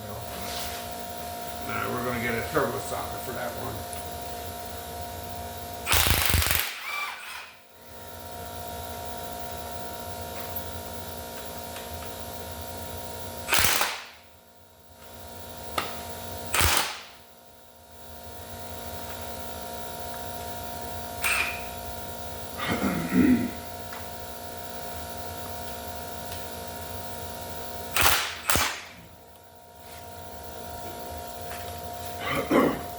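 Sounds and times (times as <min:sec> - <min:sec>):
steady hum: 0:00.0 - 0:32.9
impact wrench hammering: 0:05.9 - 0:07.6, 0:13.5 - 0:14.2, 0:15.7 - 0:17.2, 0:21.2 - 0:21.7, 0:27.9 - 0:29.1.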